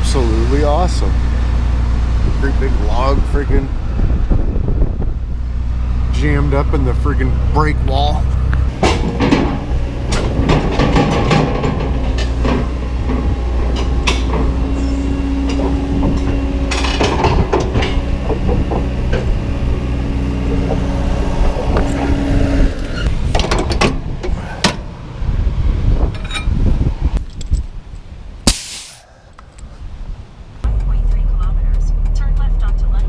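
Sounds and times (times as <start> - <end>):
truck engine running: 0.0 - 26.9, 30.6 - 33.0
rattles and clicks: 8.5 - 24.9.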